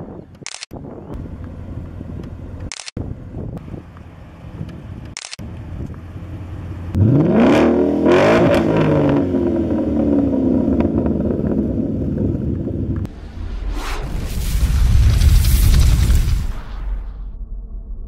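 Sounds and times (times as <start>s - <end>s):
car engine revving hard: 6.9s - 10.6s.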